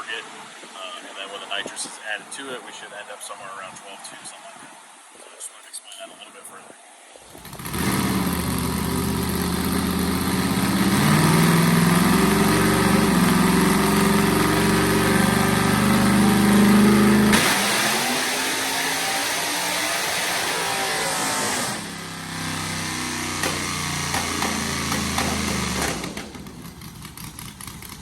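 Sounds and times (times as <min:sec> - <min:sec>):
engine revving against rev limiter: 0:07.3 - 0:27.2.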